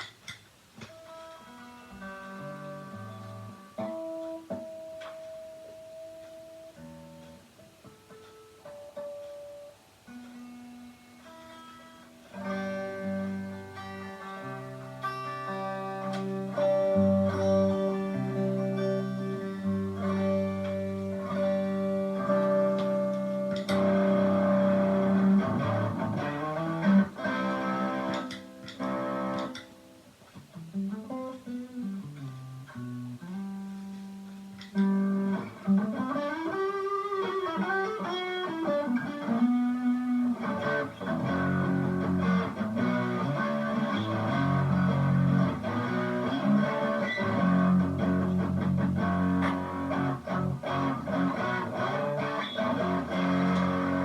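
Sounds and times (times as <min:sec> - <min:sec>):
distorted electric guitar: 0:00.0 - 0:54.0.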